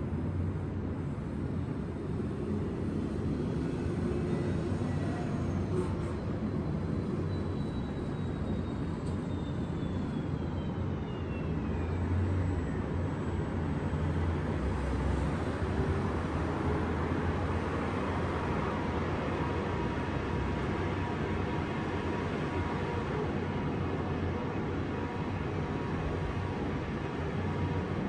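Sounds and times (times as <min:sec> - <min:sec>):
city traffic rumble: 0:00.0 - 0:28.0.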